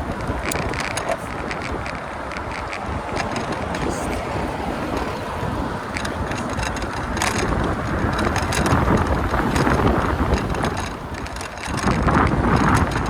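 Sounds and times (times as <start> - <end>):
bicycle clicks and rattles: 0.0 - 13.0
wind rushing over microphone: 0.0 - 13.0.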